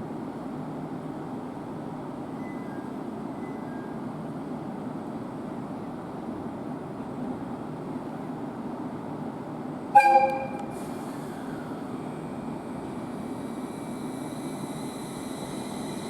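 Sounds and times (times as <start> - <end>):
faint high tones: 10.0 - 10.7
train rumbling: 10.0 - 16.0.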